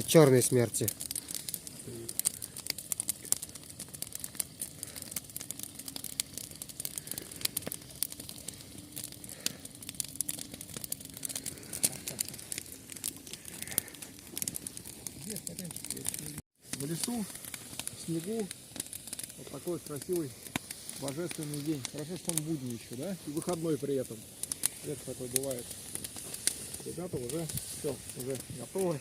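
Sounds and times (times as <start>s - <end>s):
potatoes frying in a pan: 0.0s - 3.7s, 6.6s - 8.2s, 9.3s - 9.6s, 15.2s - 29.0s
campfire crackling: 0.0s - 29.0s.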